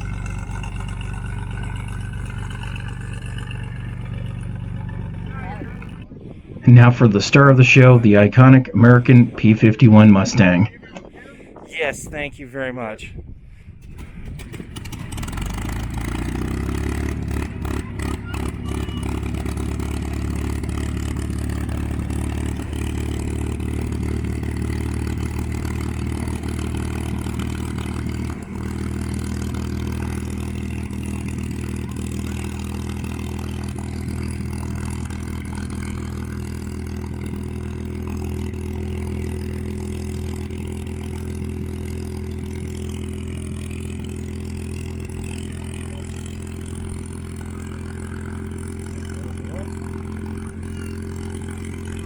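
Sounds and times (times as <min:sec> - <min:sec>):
piston engine running: 0:00.0 - 0:10.6, 0:13.8 - 0:52.0.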